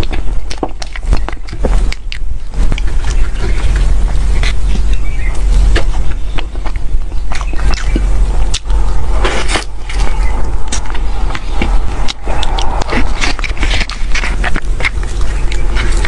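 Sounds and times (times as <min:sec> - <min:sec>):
wet mouth smacks and clicks: 0:00.0 - 0:03.2, 0:05.8 - 0:08.8, 0:09.6 - 0:16.0
low hum: 0:00.0 - 0:16.0
person chewing: 0:00.0 - 0:16.0.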